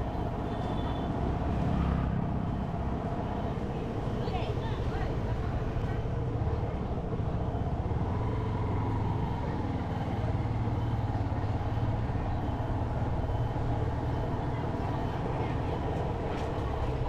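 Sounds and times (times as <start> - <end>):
road and wind noise: 0.0 - 17.0.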